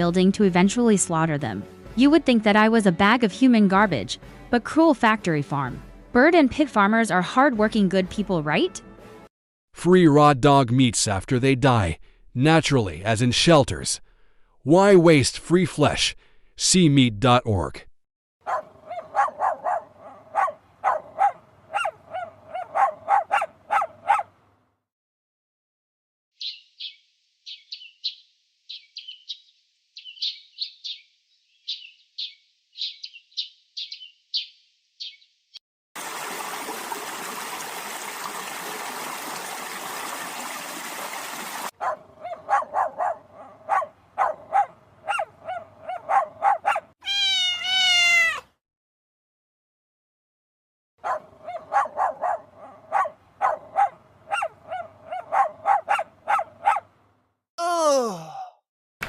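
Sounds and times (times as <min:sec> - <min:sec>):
animal yelping cries: 0:18.5 - 0:24.3, 0:42.2 - 0:48.5
high rapid animal peeps: 0:47.0 - 0:48.4
wavering animal calls: 0:47.0 - 0:48.4.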